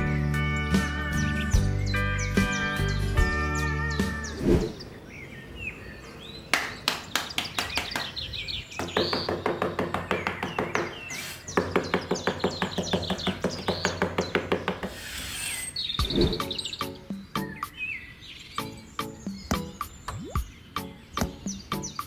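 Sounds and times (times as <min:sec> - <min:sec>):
bird chirps: 0:01.1 - 0:22.0
rapid sharp knocks: 0:06.6 - 0:15.5.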